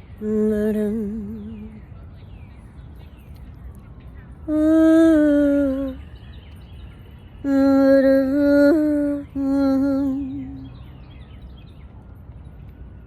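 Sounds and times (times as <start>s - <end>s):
woman humming wordless phrases: 0.2s - 1.8s, 4.5s - 6.0s, 7.4s - 10.7s.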